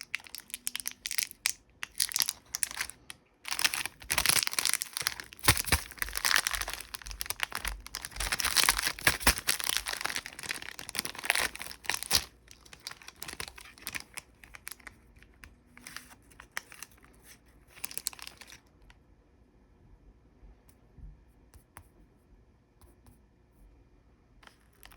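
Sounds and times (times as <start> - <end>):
candy wrapper crinkling: 0.0 - 18.7, 24.4 - 24.9.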